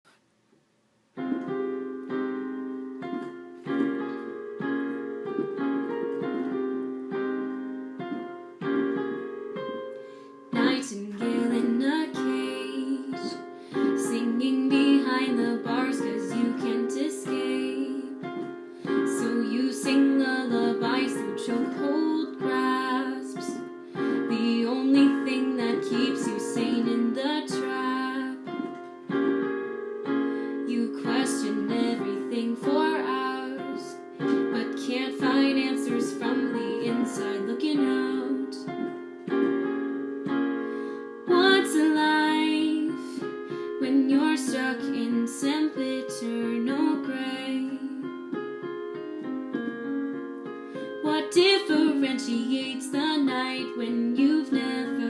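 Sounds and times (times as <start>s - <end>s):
piano chords: 1.1s - 55.0s
woman singing: 10.5s - 28.8s, 30.6s - 38.8s, 41.2s - 48.3s, 51.0s - 55.0s.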